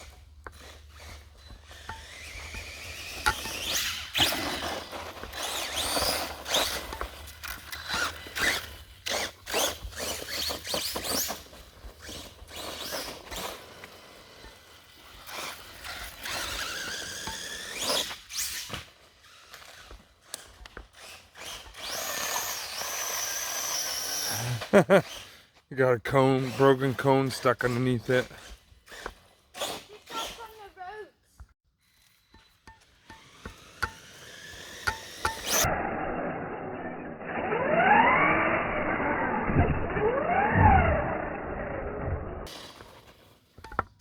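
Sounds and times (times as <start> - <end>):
toy truck rattling over ground: 0.0 - 25.4, 26.4 - 30.7
electric motor whining: 0.5 - 14.4, 15.2 - 18.3, 21.4 - 24.9, 33.2 - 42.5.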